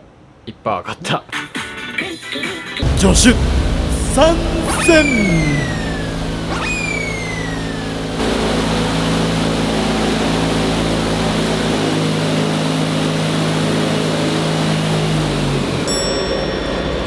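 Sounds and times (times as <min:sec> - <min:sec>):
loud rush of air: 0:02.8 - 0:11.7
fan motor hum: 0:02.8 - 0:16.2.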